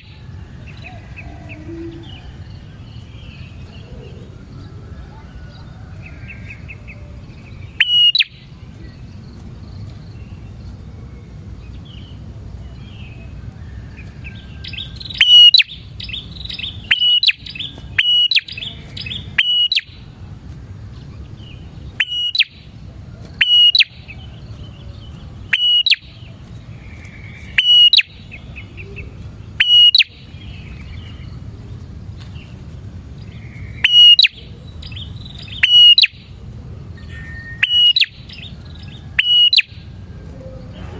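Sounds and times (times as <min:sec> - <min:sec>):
bird calling sharp notes: 0:00.0 - 0:04.4, 0:06.2 - 0:09.0, 0:14.6 - 0:20.2, 0:21.9 - 0:22.7, 0:23.4 - 0:24.4, 0:25.4 - 0:30.8, 0:33.3 - 0:36.4, 0:37.0 - 0:40.9
soft bird twittering: 0:00.0 - 0:40.9
steady low hum: 0:00.0 - 0:40.9.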